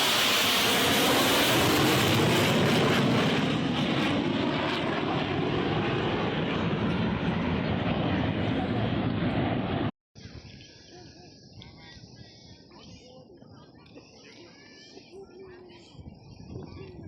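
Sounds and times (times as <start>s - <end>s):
aircraft engine passing low: 0.0s - 9.9s.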